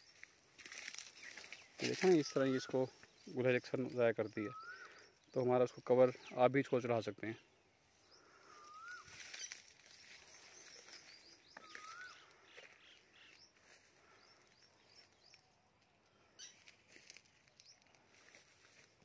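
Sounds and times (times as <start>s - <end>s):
faint birdsong chirps: 0.0s - 19.0s.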